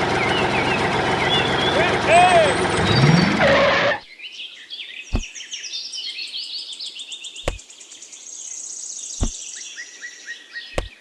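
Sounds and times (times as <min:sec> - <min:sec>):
small birds chirping and trilling: 0:04.0 - 0:11.0
sharp knocks: 0:10.8 - 0:11.0.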